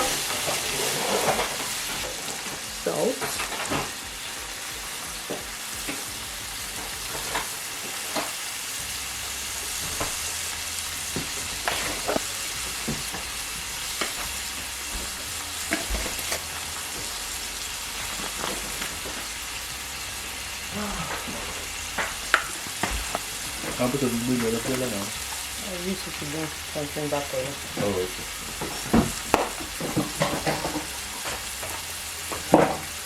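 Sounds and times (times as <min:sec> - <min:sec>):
utensil scraping a pan: 0:00.0 - 0:04.4
oil sizzling in a frying pan: 0:00.0 - 0:33.0.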